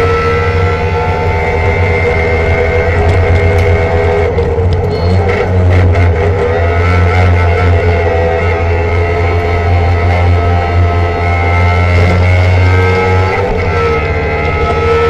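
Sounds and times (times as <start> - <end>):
two-stroke engine running: 0.0 - 15.0.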